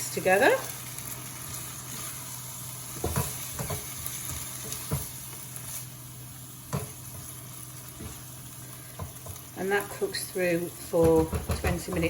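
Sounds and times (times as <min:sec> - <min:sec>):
meat and sauce sizzling in a pan: 0:00.0 - 0:12.0
utensil knocking against pan: 0:11.0 - 0:12.0.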